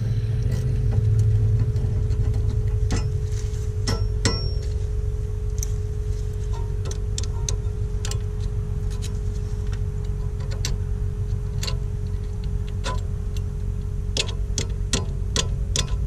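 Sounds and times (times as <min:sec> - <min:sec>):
steady low hum: 0:00.0 - 0:16.0
hand ratchet clicking: 0:14.2 - 0:16.0.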